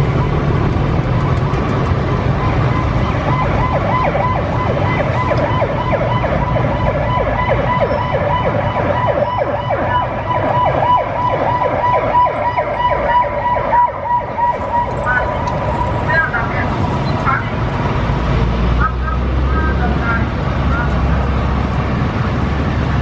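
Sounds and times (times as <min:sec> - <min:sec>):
low vehicle rumble: 0:00.0 - 0:23.0
electronic siren yelping: 0:02.3 - 0:17.5.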